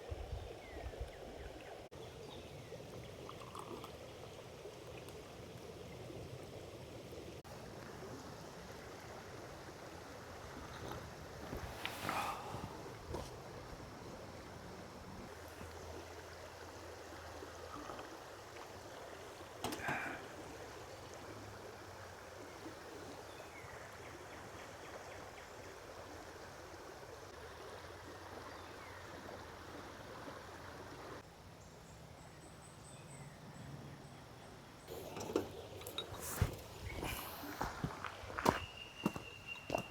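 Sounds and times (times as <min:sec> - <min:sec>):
creek water flowing: 0:00.0 - 0:31.3, 0:34.9 - 0:39.9
footsteps: 0:35.8 - 0:39.9.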